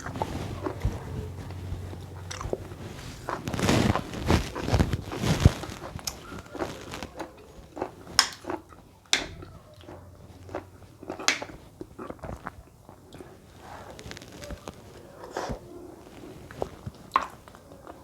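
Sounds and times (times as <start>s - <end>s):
mouth smacks: 0.0s - 13.4s
wet chewing: 0.0s - 18.0s.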